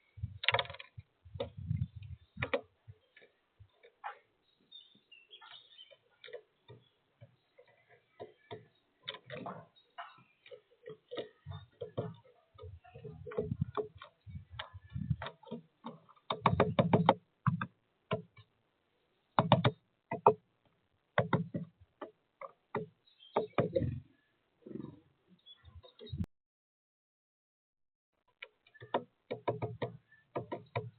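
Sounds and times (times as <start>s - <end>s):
woodpecker pecking taps: 0.4s - 4.2s, 4.9s - 18.5s, 19.4s - 20.4s, 21.2s - 24.0s, 28.4s - 30.9s.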